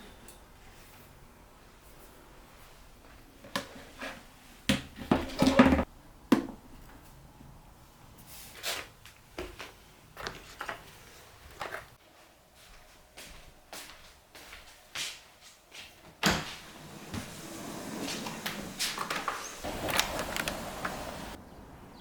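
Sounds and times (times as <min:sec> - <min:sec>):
objects knocking and clattering: 0:04.7 - 0:06.6.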